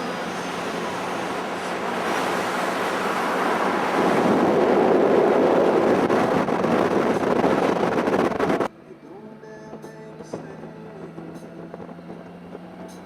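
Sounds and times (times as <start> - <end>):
wind rushing over microphone: 0.0 - 8.7, 9.7 - 13.0.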